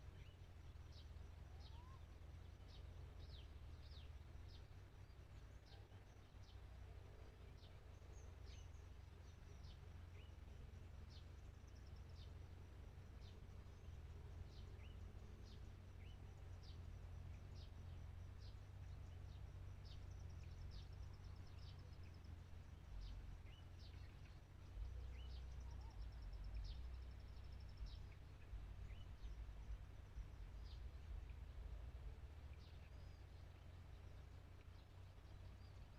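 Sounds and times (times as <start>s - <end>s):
low wind rumble: 0.0s - 35.9s
small birds chirping: 0.0s - 35.9s.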